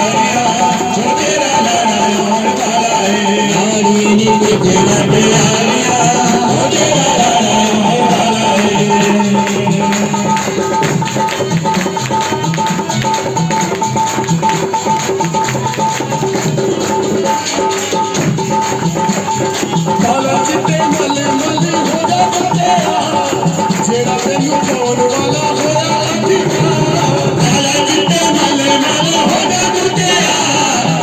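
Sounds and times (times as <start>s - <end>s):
held synth notes: 0.0s - 10.8s
shaker percussion: 0.0s - 31.0s
rhythmic bass pattern: 1.2s - 11.6s.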